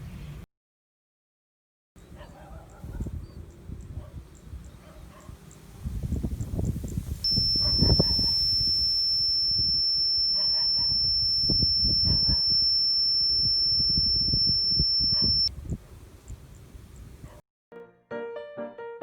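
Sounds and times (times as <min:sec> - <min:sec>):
high-pitched electronic tone: 0:07.3 - 0:15.5.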